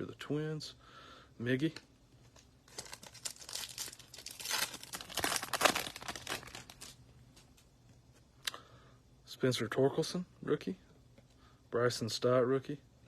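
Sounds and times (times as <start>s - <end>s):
foil wrapper crinkling: 2.3s - 7.0s.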